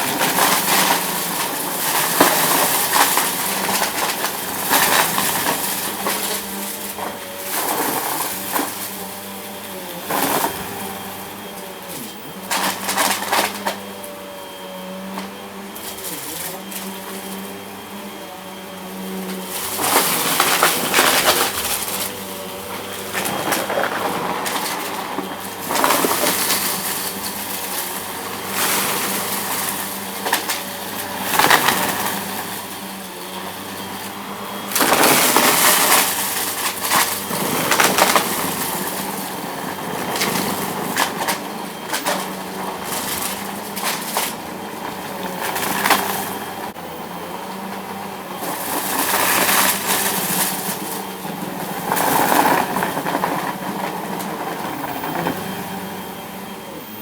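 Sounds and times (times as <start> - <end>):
debris rattling and crackling: 0.0 - 46.8, 47.5 - 56.0
vacuum cleaner running on rug: 0.0 - 57.0
sharp clicks of debris: 12.4 - 13.9, 19.3 - 32.9.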